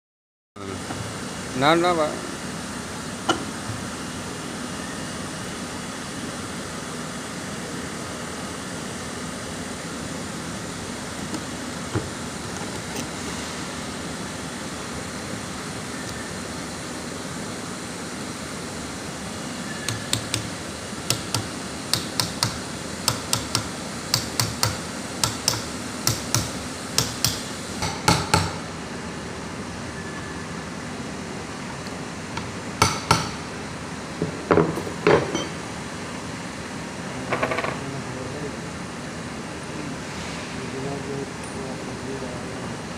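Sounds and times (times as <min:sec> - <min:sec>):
steady background hum: 0:00.6 - 0:42.9
hammer tapping on metal: 0:19.9 - 0:28.6, 0:32.4 - 0:33.4.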